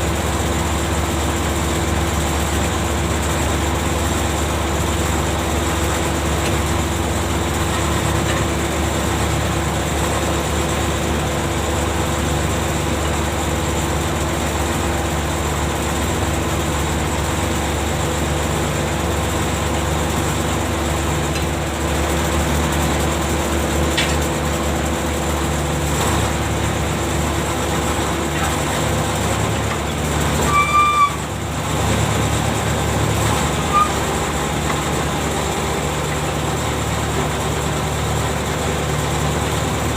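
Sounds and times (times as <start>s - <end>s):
heavy machinery drone: 0.0s - 39.9s
high-pitched squeal: 30.4s - 31.3s, 33.5s - 34.1s.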